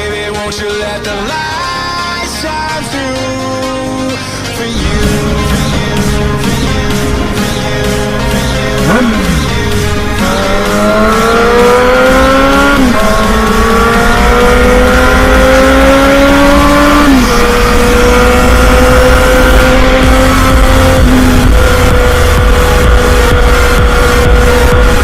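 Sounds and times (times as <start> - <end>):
motorcycle engine accelerating: 4.6 - 25.0.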